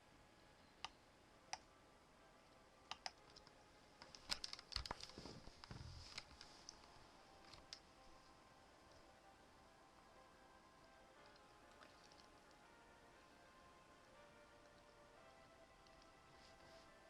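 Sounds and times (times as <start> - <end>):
faint clicks: 2.5 - 7.9.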